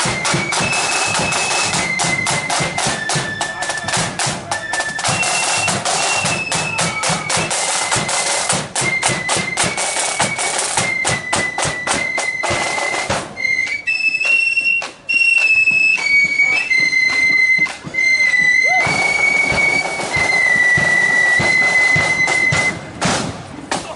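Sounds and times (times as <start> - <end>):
flutes playing melody: 0.0 - 23.2
drum strikes: 16.2 - 23.9.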